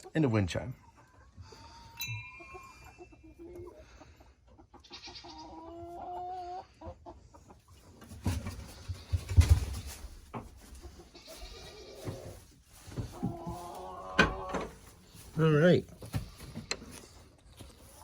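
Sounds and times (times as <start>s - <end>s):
chickens clucking: 0.0s - 18.0s
wind chime ringing: 1.9s - 3.6s.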